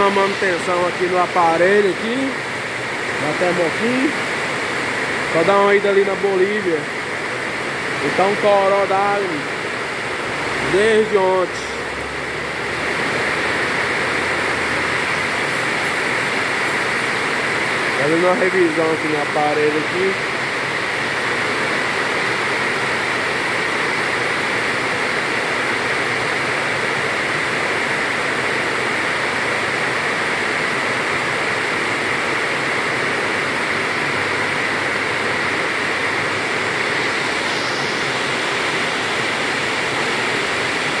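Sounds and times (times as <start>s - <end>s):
heavy rain falling: 0.0s - 41.0s.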